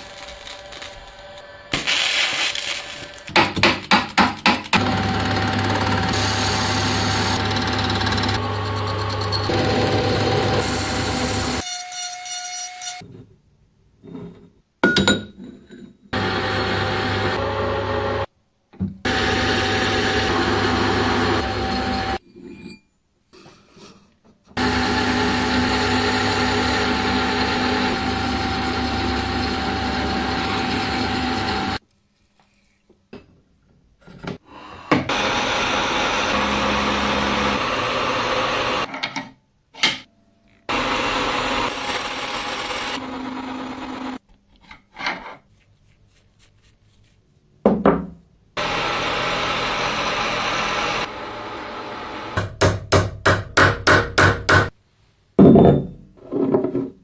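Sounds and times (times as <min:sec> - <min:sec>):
power tool running: 0:04.8 - 0:11.6, 0:19.1 - 0:22.2, 0:24.6 - 0:31.8, 0:35.1 - 0:38.9, 0:40.7 - 0:43.4.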